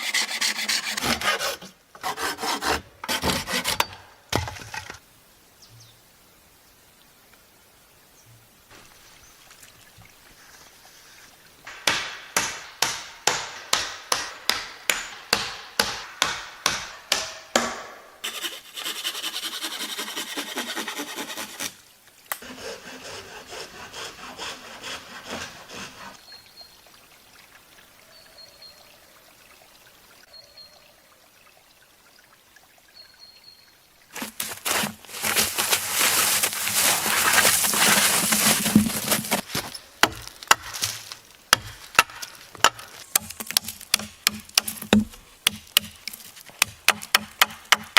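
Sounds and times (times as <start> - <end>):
hand saw cutting wood: 0.0 - 4.0, 18.2 - 26.2, 34.2 - 39.5.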